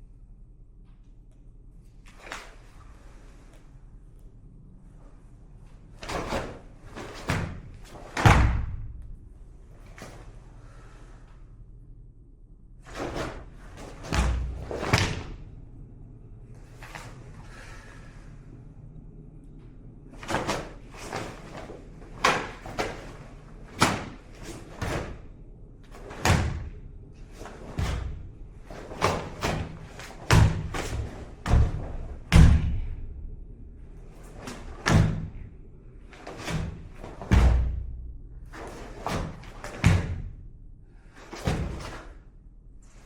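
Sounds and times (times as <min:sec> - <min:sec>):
heavy thumps: 0:12.9 - 0:15.6, 0:20.2 - 0:40.6.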